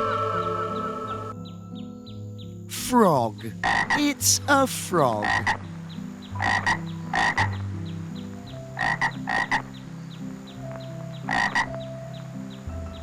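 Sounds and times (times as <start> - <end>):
frog croaking: 3.5 - 4.0, 5.2 - 5.7, 6.4 - 7.6, 8.8 - 9.7, 11.3 - 11.8.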